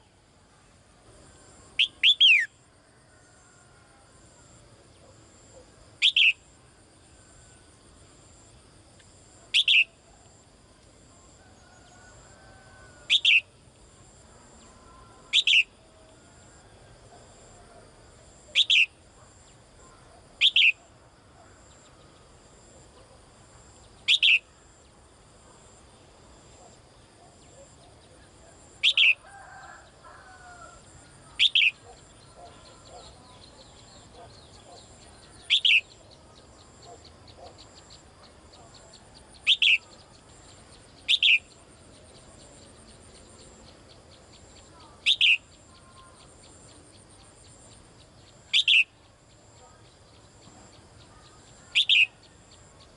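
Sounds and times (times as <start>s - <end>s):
songbird downward call: 1.8s - 2.6s, 6.0s - 6.5s, 9.5s - 10.3s, 11.4s - 13.6s, 14.6s - 16.1s, 18.4s - 19.0s, 20.4s - 20.9s, 23.9s - 24.6s, 27.4s - 52.6s.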